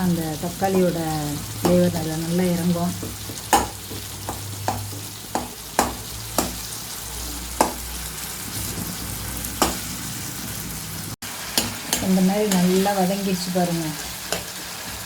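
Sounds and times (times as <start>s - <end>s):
vegetables sizzling in oil: 0.0s - 15.0s
utensil knocking against pan: 2.8s - 6.6s.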